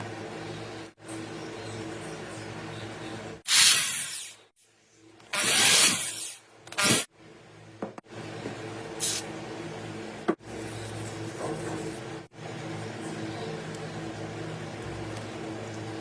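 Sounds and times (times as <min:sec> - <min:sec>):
hissing spray bursts: 0:03.5 - 0:04.4, 0:09.0 - 0:09.3.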